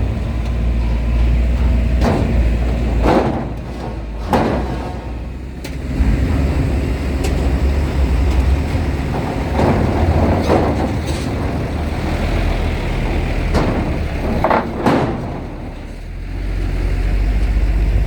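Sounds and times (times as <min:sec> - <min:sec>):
heavy trucks engine rumble: 0:00.0 - 0:18.0
sharp knocks: 0:01.6 - 0:15.8.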